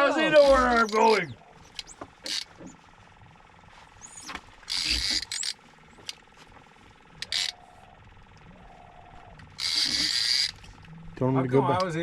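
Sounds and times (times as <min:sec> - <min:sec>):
fishing reel drag clicking: 0:01.7 - 0:02.5, 0:04.6 - 0:06.2, 0:07.2 - 0:07.6, 0:09.5 - 0:10.7.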